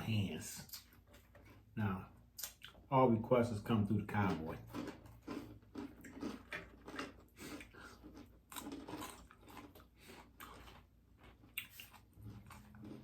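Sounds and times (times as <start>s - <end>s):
chewing crispy food: 4.1s - 13.0s.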